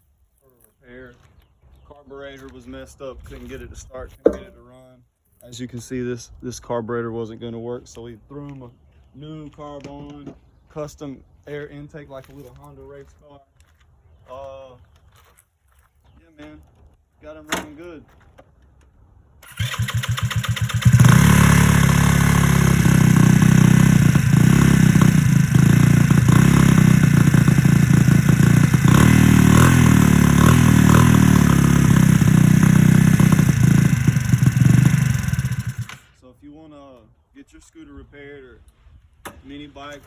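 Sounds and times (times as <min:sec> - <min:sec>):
scooter engine cranking: 0:19.4 - 0:36.1
scooter engine running: 0:19.4 - 0:36.1.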